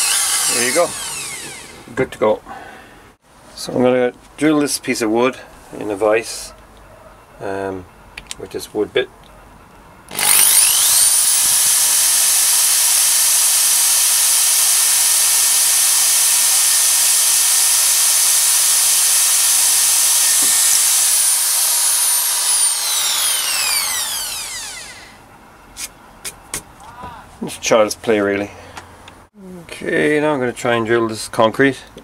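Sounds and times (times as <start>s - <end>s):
drill boring through wood: 0.0s - 1.9s, 10.1s - 25.2s.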